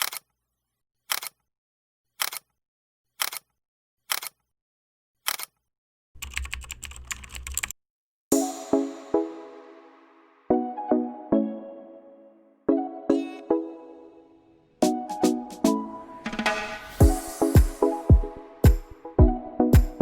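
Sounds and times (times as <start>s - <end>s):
keyboard typing: 0.0s - 0.3s, 6.2s - 7.8s
piano-like music: 8.3s - 20.0s.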